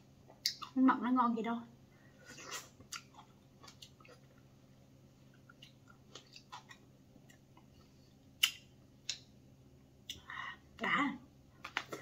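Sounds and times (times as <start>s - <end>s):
soft chewing with wet clicks: 0.2s - 0.8s, 2.8s - 4.6s, 5.2s - 9.4s, 10.0s - 10.3s.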